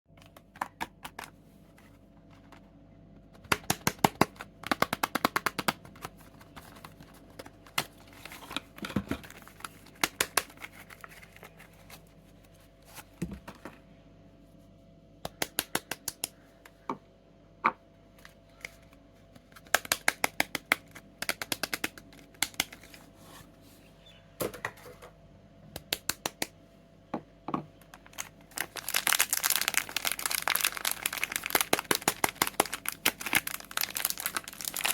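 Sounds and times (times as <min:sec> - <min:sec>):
packaging clicks and taps: 0:03.4 - 0:11.6, 0:19.5 - 0:22.9.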